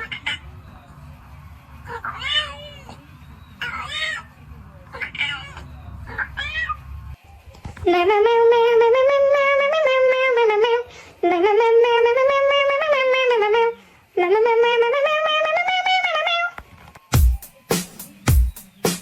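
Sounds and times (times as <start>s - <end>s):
cat yowling: 0.0s - 0.5s, 1.8s - 3.0s, 3.6s - 6.9s.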